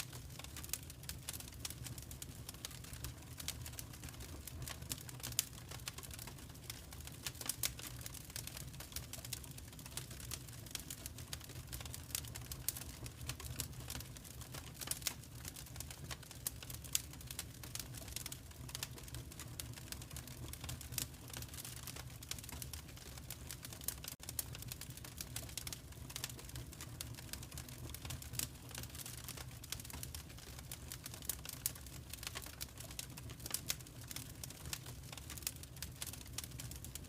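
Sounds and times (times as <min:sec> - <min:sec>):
fireplace fire crackling: 0:00.0 - 0:37.0.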